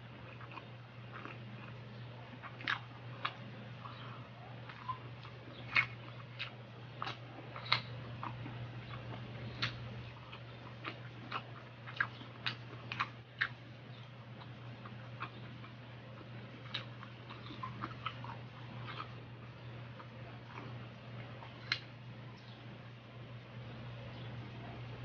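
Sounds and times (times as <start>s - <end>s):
wet chewing mouth clicks: 0.2s - 19.3s.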